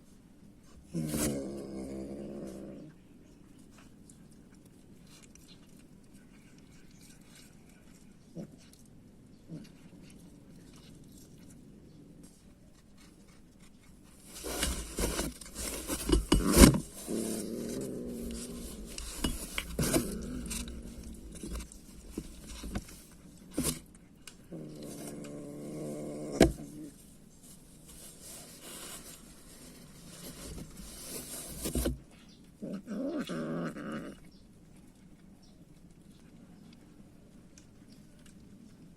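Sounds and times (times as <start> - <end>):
faint scuffling: 9.6 - 23.9
cats feeding clicks: 34.2 - 38.9.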